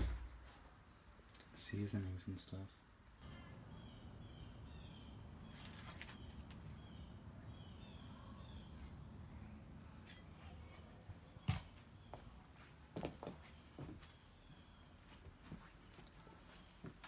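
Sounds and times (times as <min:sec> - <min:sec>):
bird chirps: 0:03.2 - 0:10.1.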